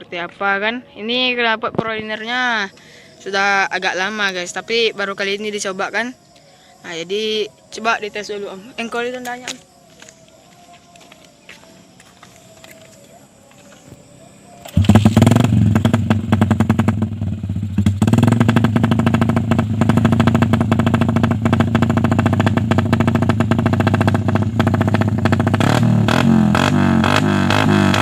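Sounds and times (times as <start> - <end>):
motorcycle engine running loud: 14.6 - 28.0.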